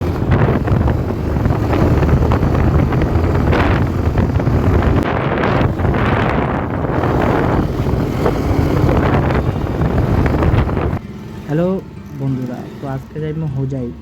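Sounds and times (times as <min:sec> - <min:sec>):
wind buffeting microphone: 0:00.0 - 0:11.7
motorcycle engine rumbling: 0:00.0 - 0:14.0.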